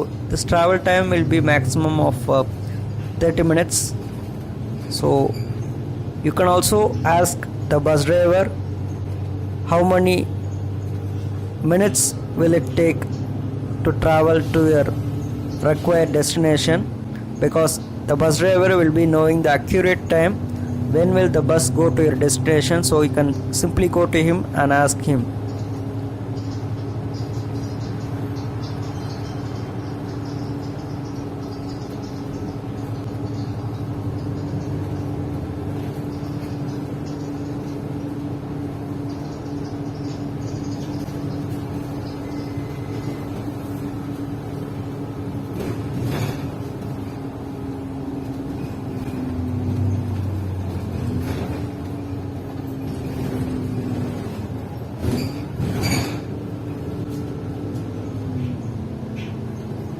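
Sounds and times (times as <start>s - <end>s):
bus engine drone: 0.0s - 59.9s
short knocks and rattles: 43.0s - 58.0s.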